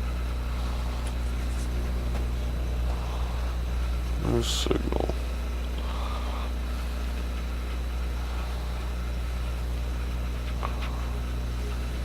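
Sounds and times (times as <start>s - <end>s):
computer mechanical drone: 0.0s - 12.0s.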